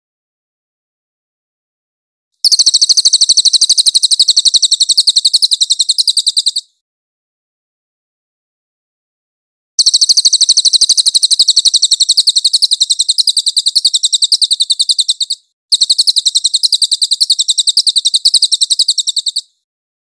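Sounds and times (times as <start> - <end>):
jay calling with rapid rattle: 2.4 - 6.8, 9.8 - 19.6.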